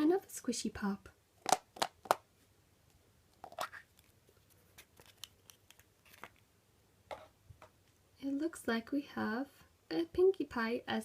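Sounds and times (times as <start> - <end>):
plastic wrapping crinkling: 3.4 - 6.5.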